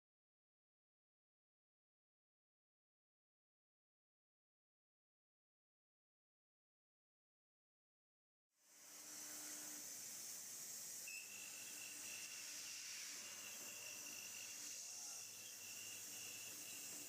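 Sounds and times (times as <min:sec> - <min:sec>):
high thin machine whine: 0:08.6 - 0:17.0
milling machine hiss: 0:08.6 - 0:17.0.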